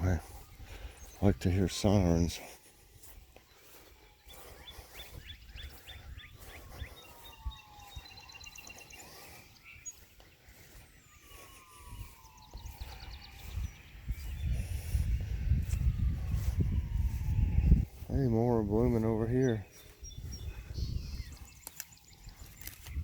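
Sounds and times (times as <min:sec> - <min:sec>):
birds trilling: 0:00.0 - 0:23.0
distant siren wailing: 0:00.0 - 0:23.0
low rumble: 0:12.0 - 0:18.1.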